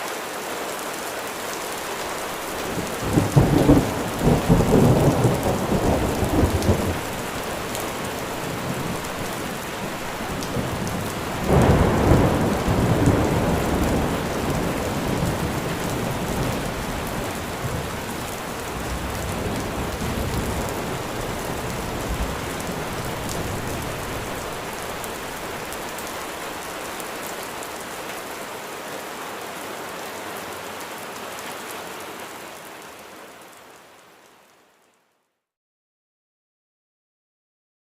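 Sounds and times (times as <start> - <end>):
steady rain falling: 0.0 - 35.2
thunder rumbling: 2.4 - 27.0.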